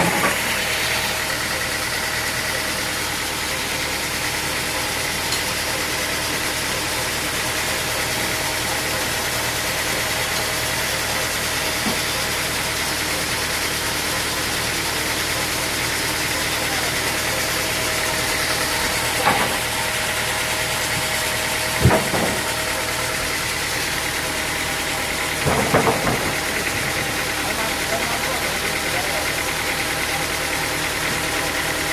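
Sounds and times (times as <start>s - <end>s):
engine running steadily: 0.0s - 31.9s.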